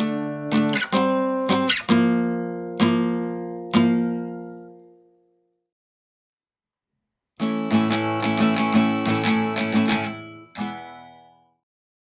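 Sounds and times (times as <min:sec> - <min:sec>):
acoustic guitar strumming chords: 0:00.0 - 0:05.1, 0:07.4 - 0:11.6.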